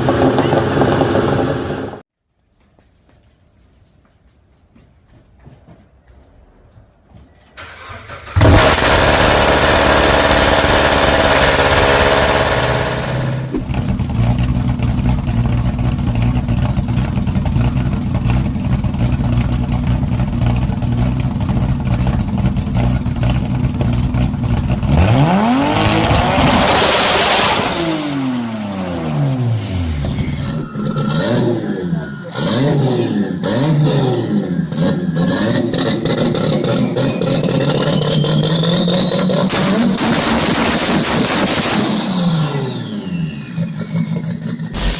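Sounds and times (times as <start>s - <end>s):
car engine cranking and starting: 0.0s - 2.0s, 7.6s - 44.9s
car engine revving: 0.0s - 2.0s, 7.6s - 44.9s
car engine idling: 7.6s - 26.0s.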